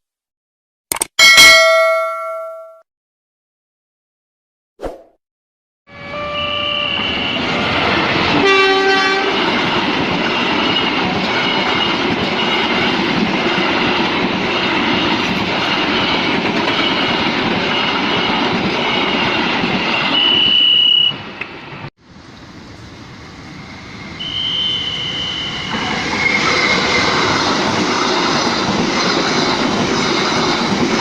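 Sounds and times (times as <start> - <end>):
high steady tone: 1.2 - 2.8
train horn: 5.9 - 9.4, 20.1 - 21.2, 24.2 - 27.0
train wheels rumbling and clattering: 9.1 - 20.5, 25.6 - 31.0.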